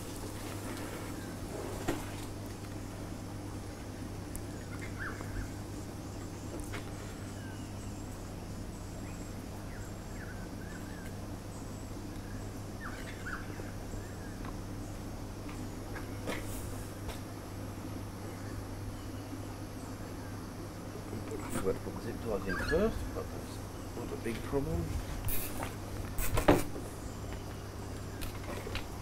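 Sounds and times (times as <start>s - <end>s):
steady low hum: 0.0s - 29.0s
faint bird chirps: 4.4s - 16.8s, 18.2s - 25.6s.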